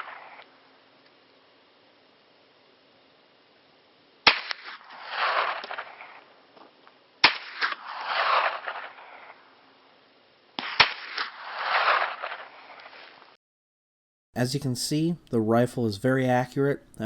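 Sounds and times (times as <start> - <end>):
gunshots with echo: 7.2 - 9.0, 10.6 - 12.4.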